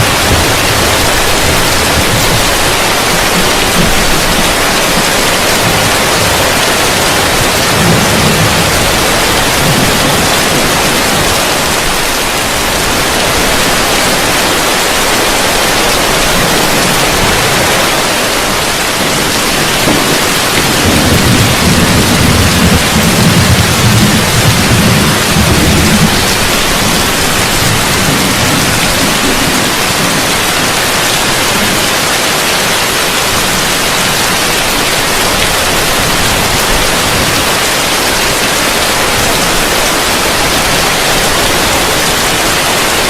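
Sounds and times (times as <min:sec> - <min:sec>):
thunder rumble: 0:00.0 - 0:32.7
heavy rain on a roof: 0:00.0 - 0:43.0.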